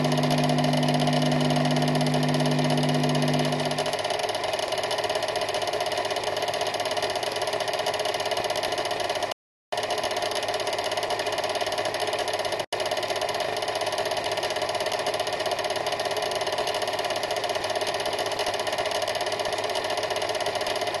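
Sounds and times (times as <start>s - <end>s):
mechanical whirring rattle: 0.0s - 9.2s.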